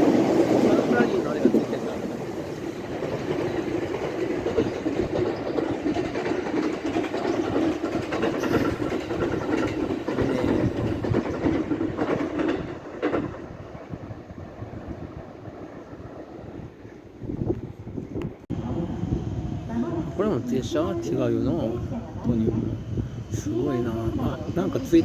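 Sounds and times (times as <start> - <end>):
wheels clacking over rail joints: 0.0 - 18.9
electric train passing: 0.0 - 25.0.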